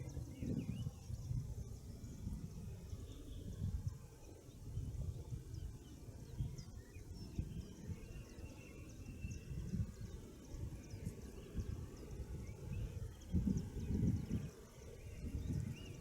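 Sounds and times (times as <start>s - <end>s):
birds chirping: 5.5s - 16.0s.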